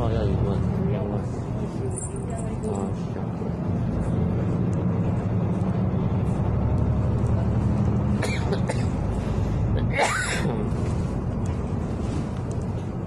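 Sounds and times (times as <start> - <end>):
bus engine droning: 0.0 - 13.0
person coughing: 8.2 - 9.0, 9.8 - 10.7.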